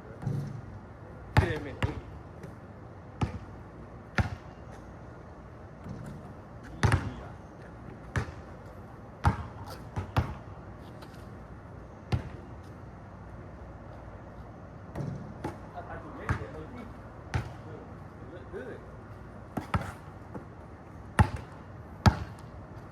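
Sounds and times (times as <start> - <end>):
basketball bouncing: 4.2 - 4.4, 6.7 - 7.2, 8.1 - 8.4, 9.2 - 10.4, 17.3 - 17.6, 19.6 - 20.5, 21.2 - 22.5.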